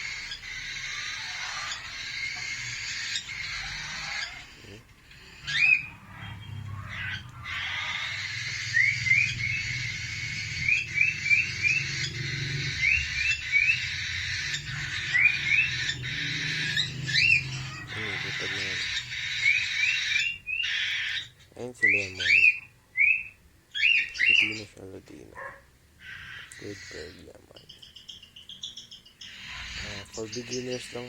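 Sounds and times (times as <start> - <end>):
cockatiel chirping: 0.0 - 24.8, 25.4 - 31.0.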